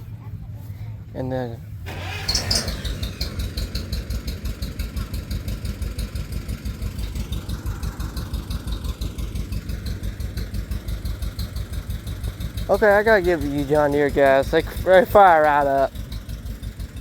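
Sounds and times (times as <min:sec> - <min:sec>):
tractor engine idling: 0:00.0 - 0:17.0.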